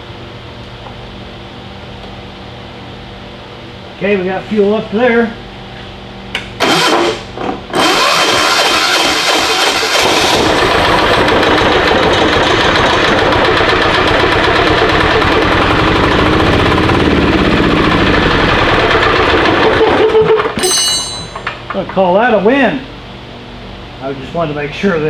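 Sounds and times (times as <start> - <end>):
diesel generator running loudly: 0.0 - 25.0.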